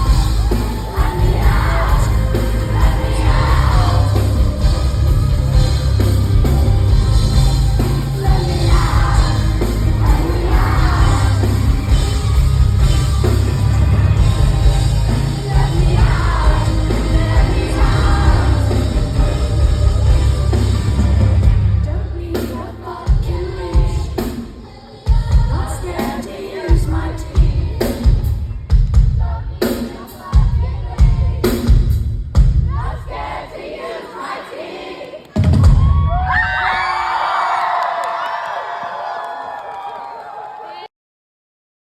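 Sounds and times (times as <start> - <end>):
sung or shouted vocals: 0.0 - 12.8, 13.8 - 31.8, 32.6 - 40.9
audience yelling and cheering: 0.0 - 28.2, 32.7 - 40.9
loud live band with heavy bass: 0.0 - 32.9.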